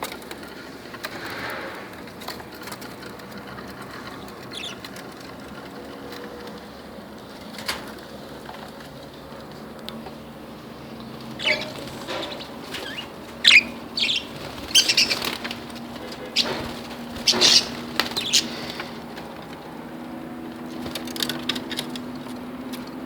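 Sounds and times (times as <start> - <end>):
budgerigars chirping: 4.1 - 5.0, 11.0 - 19.0
wing flutters: 11.1 - 22.9.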